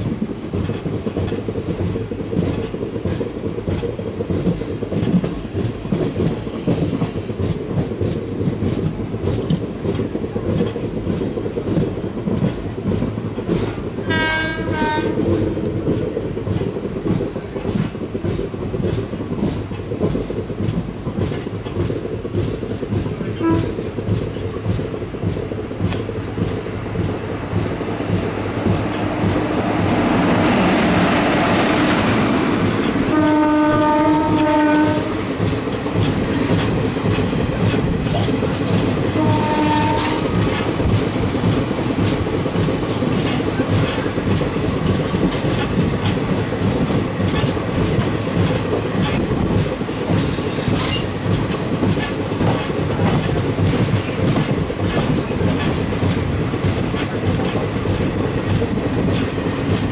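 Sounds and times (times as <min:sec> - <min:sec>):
train coaches rumbling: 0:00.0 - 0:59.9
wheels clacking over rail joints: 0:00.0 - 0:59.9
locomotive horn: 0:14.1 - 0:15.2, 0:23.4 - 0:23.8, 0:33.1 - 0:35.2, 0:39.2 - 0:40.4
locomotive rushing past: 0:26.1 - 0:48.9.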